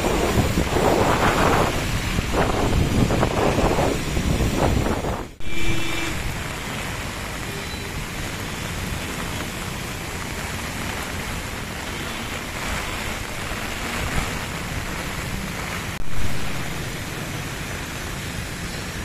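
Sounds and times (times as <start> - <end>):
wind buffeting microphone: 0.0 - 5.4
heavy rain on flooded road: 0.0 - 19.0.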